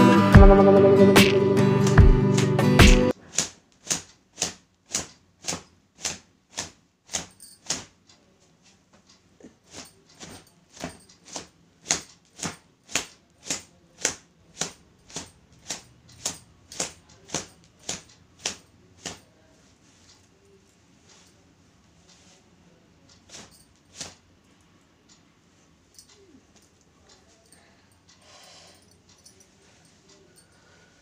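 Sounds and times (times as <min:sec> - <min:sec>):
guitar music: 0:00.0 - 0:03.1.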